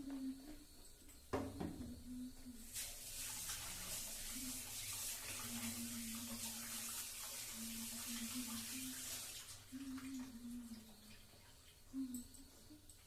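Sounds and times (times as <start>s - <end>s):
faint low wavering hum: 0.0s - 2.6s, 9.7s - 13.0s
water running from a tap: 2.6s - 13.0s.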